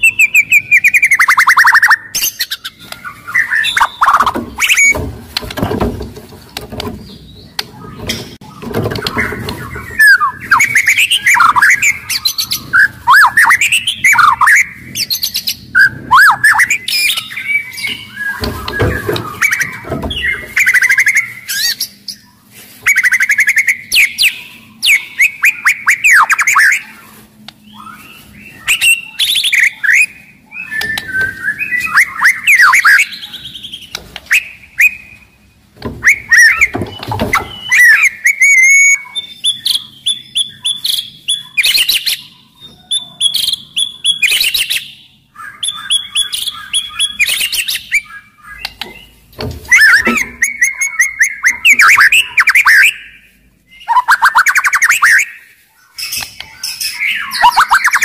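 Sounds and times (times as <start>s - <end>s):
bird singing whistles: 0.0s - 5.0s, 9.1s - 21.8s, 22.9s - 26.9s, 27.6s - 35.2s, 35.9s - 48.8s, 49.6s - 58.0s
sharp clicking bird notes: 29.2s - 33.2s, 48.6s - 52.9s.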